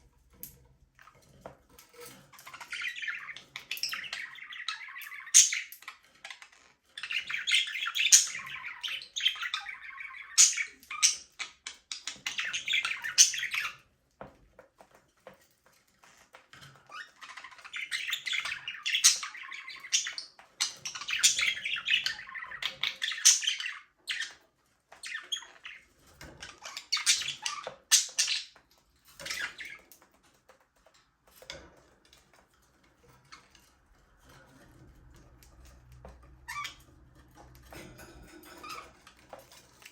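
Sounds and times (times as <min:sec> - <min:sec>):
budgerigars chirping: 0:02.3 - 0:13.8, 0:16.8 - 0:29.9, 0:36.3 - 0:37.0.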